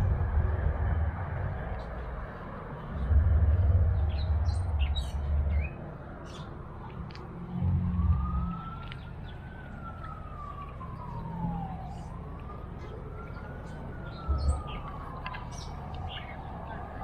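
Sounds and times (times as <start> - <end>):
distant emergency siren wailing: 0.0 - 17.0
low thumps: 3.0 - 5.6
small birds chirping: 3.9 - 6.7, 8.7 - 17.0.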